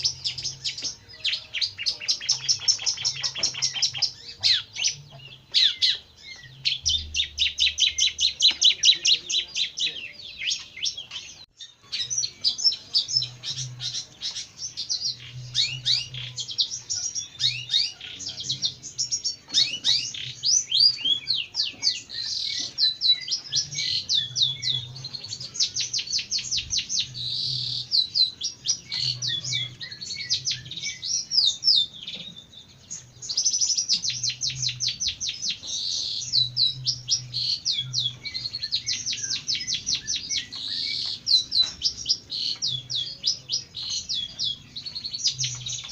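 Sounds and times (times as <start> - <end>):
bird chattering song: 0.0 - 45.9.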